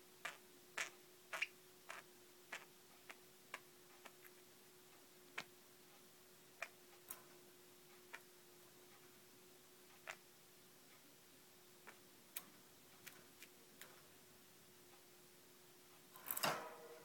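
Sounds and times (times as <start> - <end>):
faint steady hum: 0.0 - 17.0
budgies making sharp ticks: 0.2 - 5.6, 6.5 - 7.2, 7.9 - 9.0, 9.9 - 10.3, 11.8 - 14.1.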